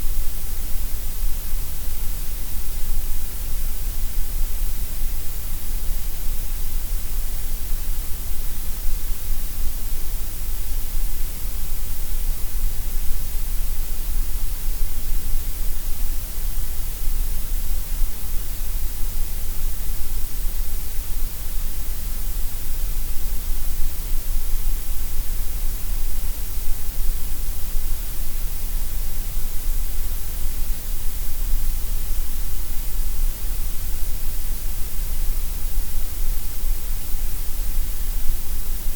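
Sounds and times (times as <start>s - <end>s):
steady gray noise hiss: 0.0s - 38.9s.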